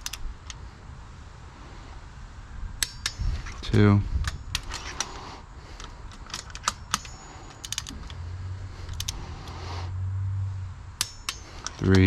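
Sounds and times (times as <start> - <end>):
ratchet wrench clicking: 0.0 - 0.6, 2.8 - 3.6, 5.8 - 8.2, 8.8 - 9.6, 11.0 - 12.0
steady low hum: 0.0 - 12.0.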